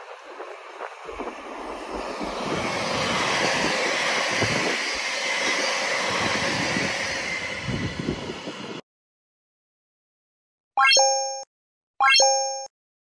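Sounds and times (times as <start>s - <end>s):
train passing at speed: 0.0s - 8.8s.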